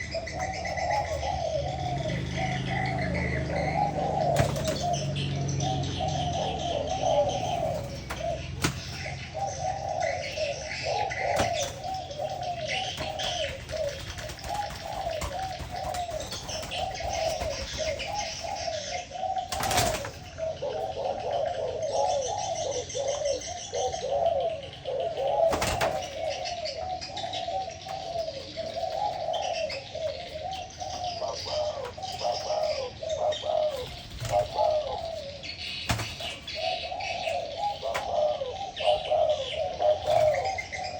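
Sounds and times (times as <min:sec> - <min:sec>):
doves cooing: 0:00.0 - 0:40.9
small birds chirping faintly: 0:00.0 - 0:40.9.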